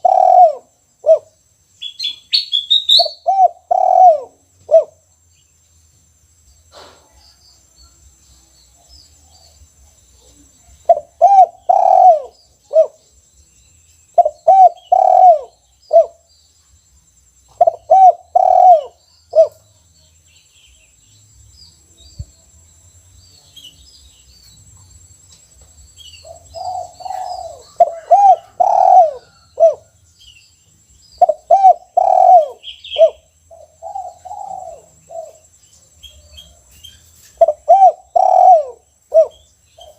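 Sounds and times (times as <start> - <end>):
dove cooing: 0.0 - 1.4, 2.8 - 5.0, 10.8 - 13.0, 14.2 - 16.2, 17.6 - 19.6, 26.2 - 30.0, 31.2 - 35.4, 37.4 - 39.9
faint high bird chirps: 0.0 - 5.6, 23.1 - 39.9.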